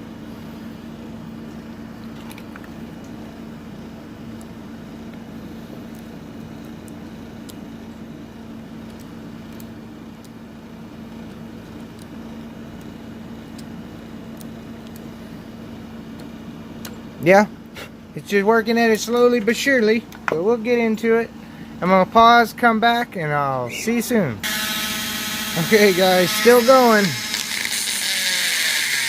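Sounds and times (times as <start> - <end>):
power drill cutting into lock: 24.4 - 29.0.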